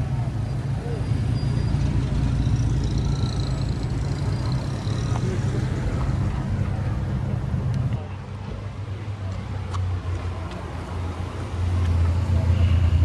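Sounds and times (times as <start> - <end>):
car engine rumbling: 0.0 - 8.6.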